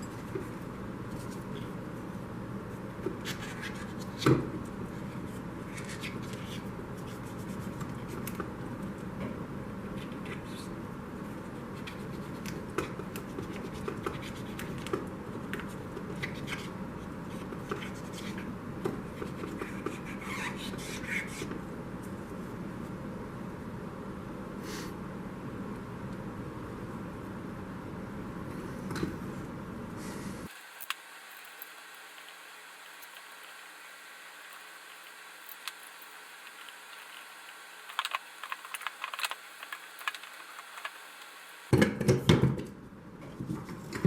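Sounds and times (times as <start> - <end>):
hands handling small parts: 30.5 - 41.3.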